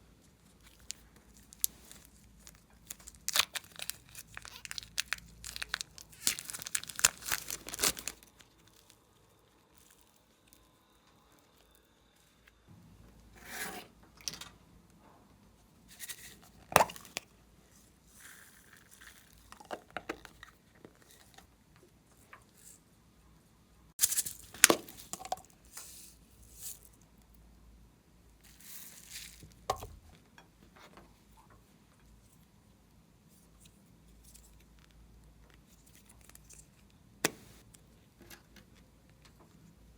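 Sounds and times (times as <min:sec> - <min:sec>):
slime crackling and tearing: 0:00.6 - 0:09.0
sharp slime pops: 0:16.8 - 0:17.2, 0:37.2 - 0:37.6.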